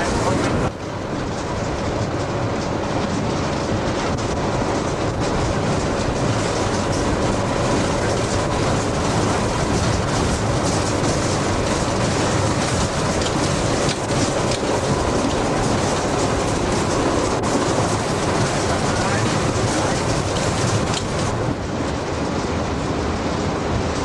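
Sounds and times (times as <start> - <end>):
train running heard from cab: 0.0 - 24.0.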